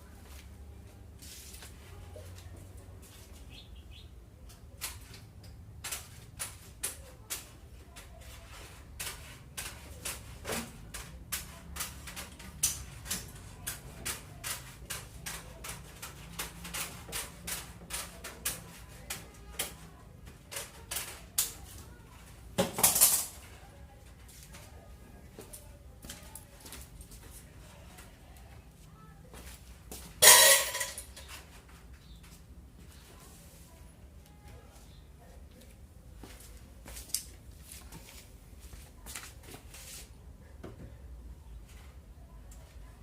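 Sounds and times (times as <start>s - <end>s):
metal clatter: 30.2s - 31.2s.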